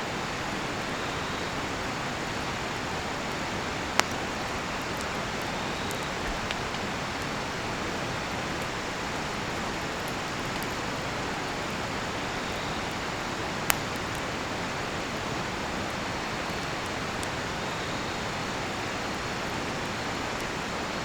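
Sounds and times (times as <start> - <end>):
firewood popping and crackling: 2.3 - 20.6.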